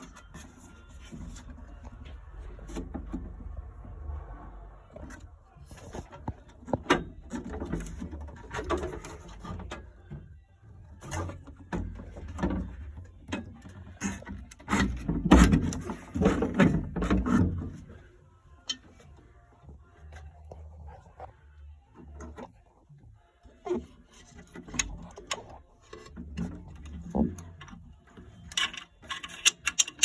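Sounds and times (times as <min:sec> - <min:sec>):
tools being handled: 0:24.2 - 0:30.0.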